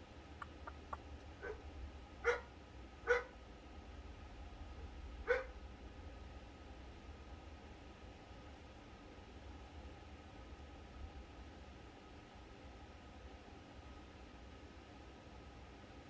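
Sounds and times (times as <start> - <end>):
low steady hum: 0.0 - 16.0
faint clicks: 0.4 - 1.4
dog barking: 0.4 - 3.4, 5.2 - 5.6.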